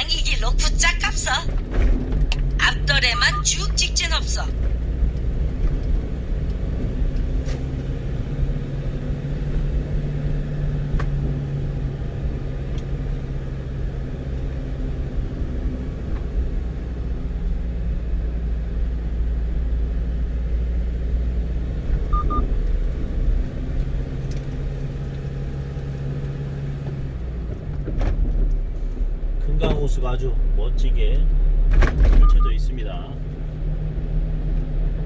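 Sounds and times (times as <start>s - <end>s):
truck engine and road noise: 0.0s - 35.0s
double electronic beep: 3.0s - 4.2s, 22.1s - 22.4s, 32.2s - 32.7s.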